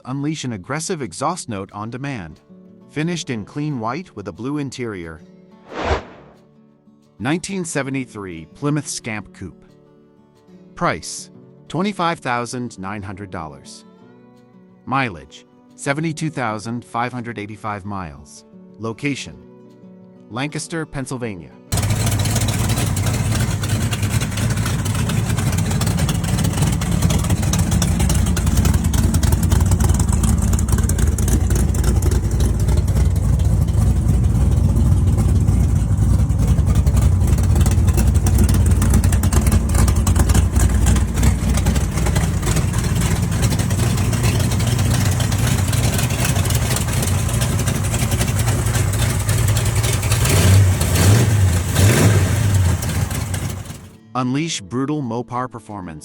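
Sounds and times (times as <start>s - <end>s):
car engine idling and revving: 21.7s - 54.0s.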